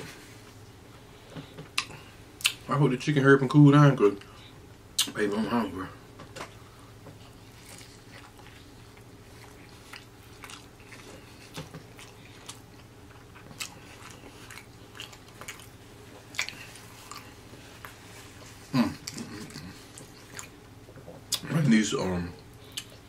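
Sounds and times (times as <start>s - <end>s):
person chewing crispy food: 6.5s - 20.7s.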